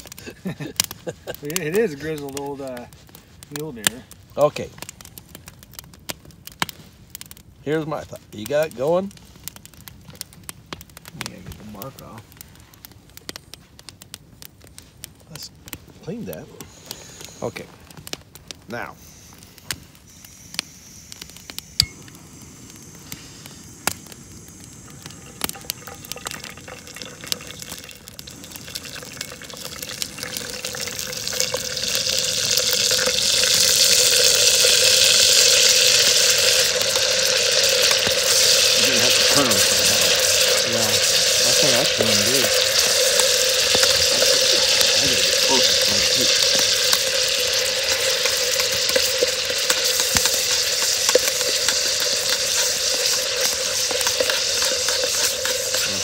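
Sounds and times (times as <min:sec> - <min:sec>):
gas burner hiss: 0:00.0 - 0:04.9, 0:15.3 - 0:56.0
meat sizzling in hot oil: 0:00.0 - 0:12.2, 0:20.1 - 0:56.0.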